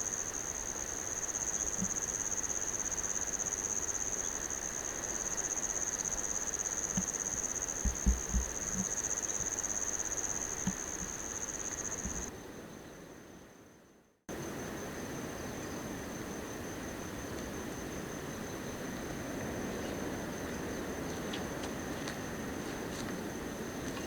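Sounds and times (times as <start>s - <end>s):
cricket trilling: 0.0s - 12.3s
low thumps: 7.8s - 9.5s.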